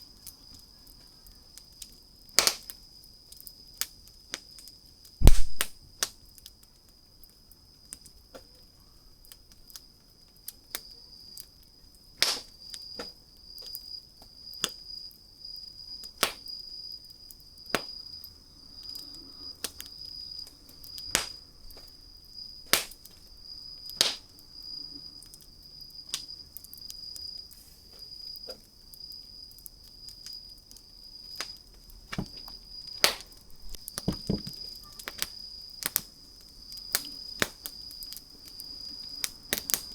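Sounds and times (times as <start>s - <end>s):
campfire crackling and popping: 1.4s - 8.1s, 12.2s - 12.9s, 19.6s - 21.4s, 23.9s - 24.4s, 31.4s - 39.9s.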